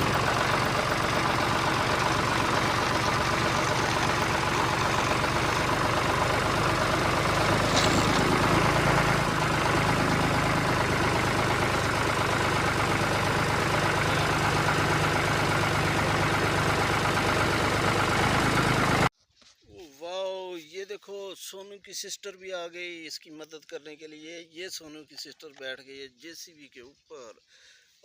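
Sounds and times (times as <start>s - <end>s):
vehicle engine droning: 0.0s - 19.1s.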